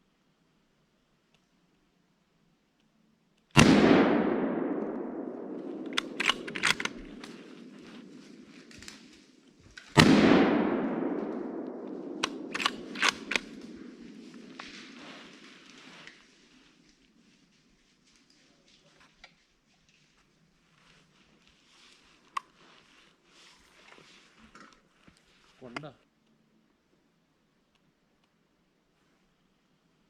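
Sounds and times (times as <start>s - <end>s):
sharp gun clicks: 3.5s - 15.5s
gunshots with long echo: 3.6s - 16.2s.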